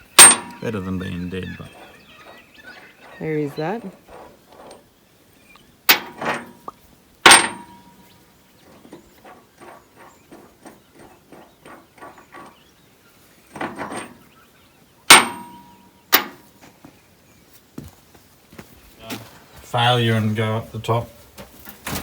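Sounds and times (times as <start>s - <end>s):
hammer clanging on steel: 0.0s - 2.4s, 5.9s - 12.6s, 13.5s - 14.3s, 15.1s - 16.5s.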